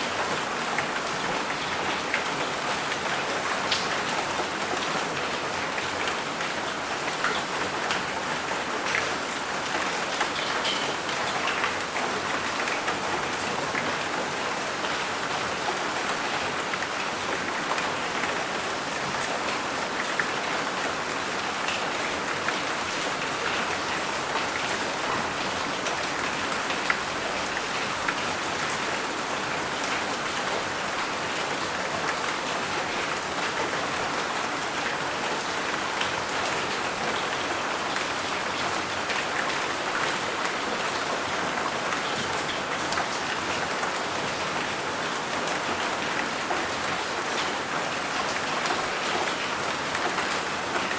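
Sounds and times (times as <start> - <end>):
steady rain falling: 0.0 - 50.9.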